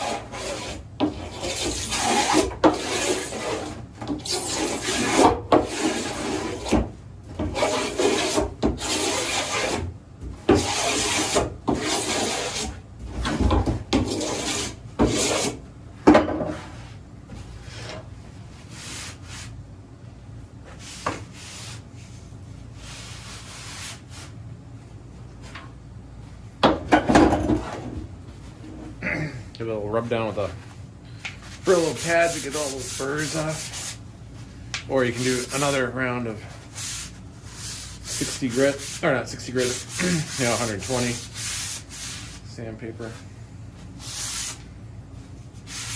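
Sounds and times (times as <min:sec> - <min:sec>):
hand rasp scraping plastic pipe: 0:00.0 - 0:06.8, 0:07.4 - 0:09.9, 0:10.5 - 0:12.8, 0:14.0 - 0:15.6, 0:31.5 - 0:34.0, 0:36.8 - 0:42.4.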